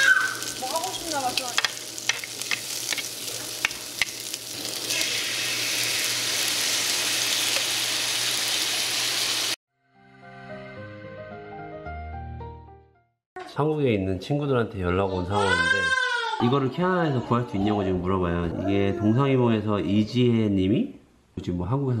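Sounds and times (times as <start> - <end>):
food sizzling in a frying pan: 0.0 - 9.6.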